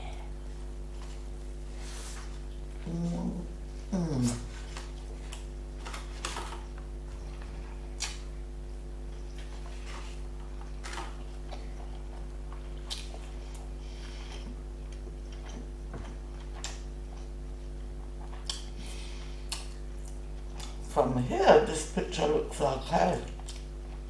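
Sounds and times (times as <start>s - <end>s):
low electrical hum: 0.0s - 24.0s
chewing mouth clicks: 11.5s - 13.7s, 18.2s - 18.7s, 19.4s - 20.8s, 23.3s - 23.7s.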